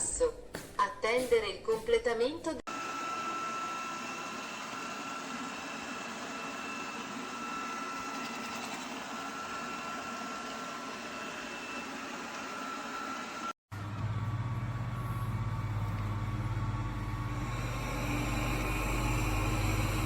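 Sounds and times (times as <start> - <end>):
robot vacuum motor whine: 2.7 - 20.0.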